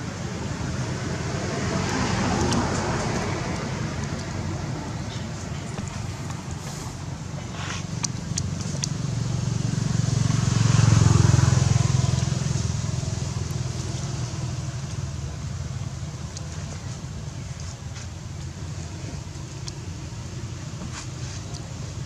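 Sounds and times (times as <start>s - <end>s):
vehicle engine passing by: 0.7s - 7.8s, 8.7s - 15.7s.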